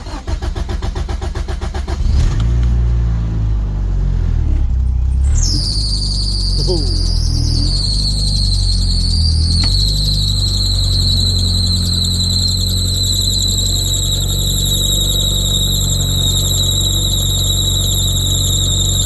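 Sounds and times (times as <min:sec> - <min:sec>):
car engine running: 0:02.0 - 0:19.0
high-pitched engine squeal: 0:05.1 - 0:19.0.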